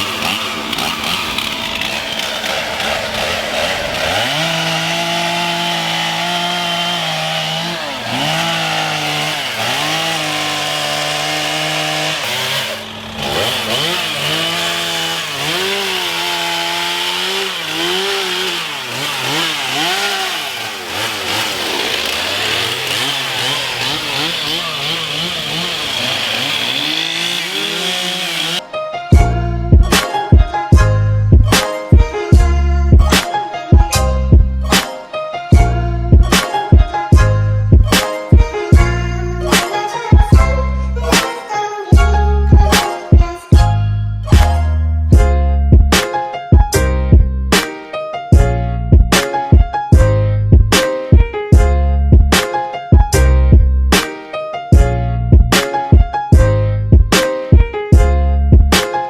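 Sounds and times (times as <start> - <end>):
chainsaw cutting wood: 0.0 - 28.7, 39.5 - 41.3, 42.6 - 43.2, 55.5 - 55.9, 58.7 - 59.0
music with a beat: 29.2 - 38.6, 45.2 - 47.8, 48.4 - 54.2, 54.8 - 59.0.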